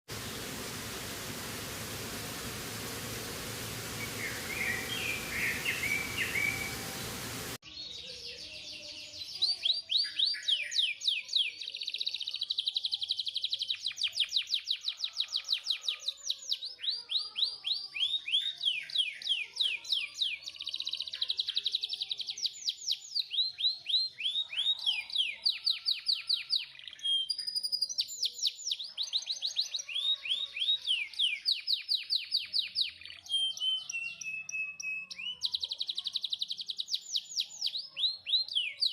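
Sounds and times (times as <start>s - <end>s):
canary singing rolling trills: 0.1s - 7.6s
faint chirps: 0.1s - 7.6s
steady hiss: 0.1s - 7.6s.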